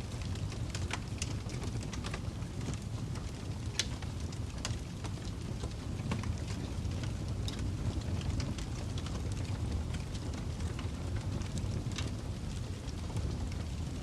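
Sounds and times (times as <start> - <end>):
logs crackling and popping: 0.0 - 14.0
low rumble of flames: 0.0 - 14.0.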